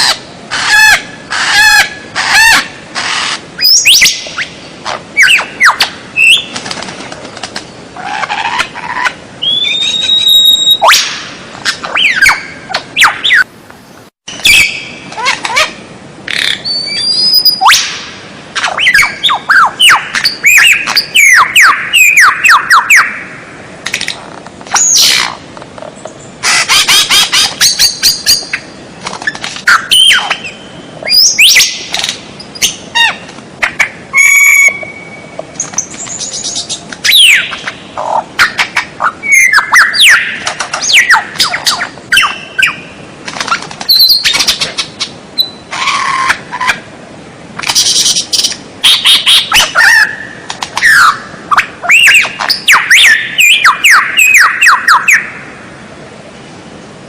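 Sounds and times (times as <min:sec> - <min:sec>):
songbird singing whistles and calls: 0:03.6 - 0:04.6, 0:05.2 - 0:06.6, 0:09.4 - 0:13.5, 0:14.3 - 0:15.7, 0:16.3 - 0:18.0, 0:18.6 - 0:23.2, 0:26.1 - 0:28.7, 0:29.3 - 0:33.2, 0:34.1 - 0:43.0, 0:43.9 - 0:46.4, 0:47.7 - 0:55.4.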